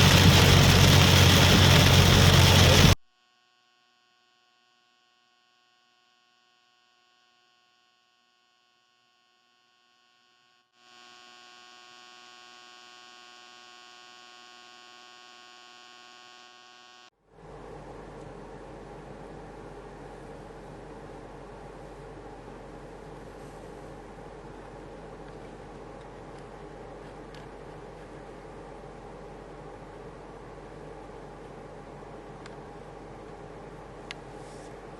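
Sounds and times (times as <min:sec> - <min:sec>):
loud rushing noise: 0:00.0 - 0:03.0
faint electrical hum: 0:00.0 - 0:34.9.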